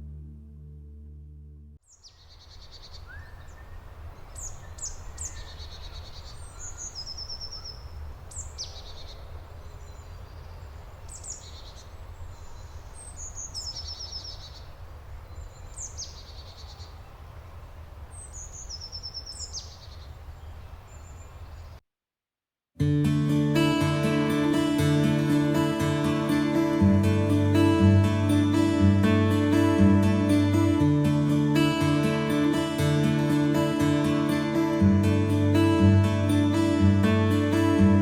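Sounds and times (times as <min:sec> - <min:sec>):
low steady rumble: 0:00.0 - 0:01.8
forest bird calling: 0:01.8 - 0:21.8.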